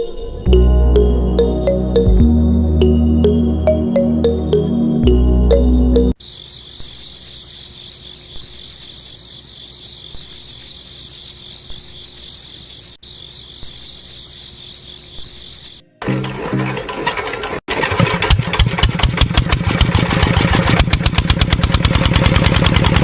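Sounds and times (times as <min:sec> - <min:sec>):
insects chirring: 0:06.2 - 0:16.0.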